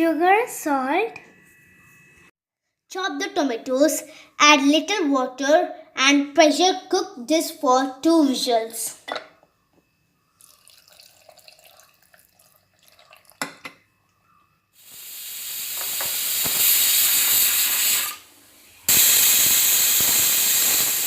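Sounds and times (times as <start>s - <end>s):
pressure cooker whistling and hissing: 14.2s - 21.0s.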